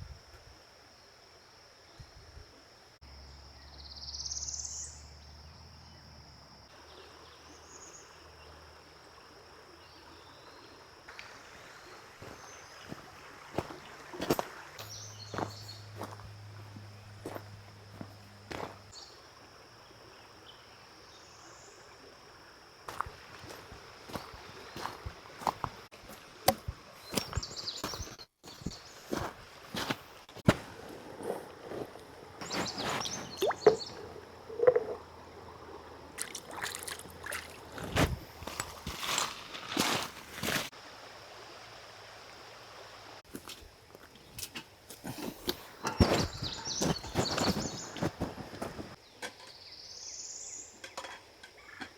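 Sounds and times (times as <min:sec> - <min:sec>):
creek water flowing: 0:06.7 - 0:49.0
rustling handling noise: 0:28.0 - 0:35.0, 0:37.6 - 0:40.7, 0:44.4 - 0:49.0
insect trilling: 0:32.4 - 0:39.9.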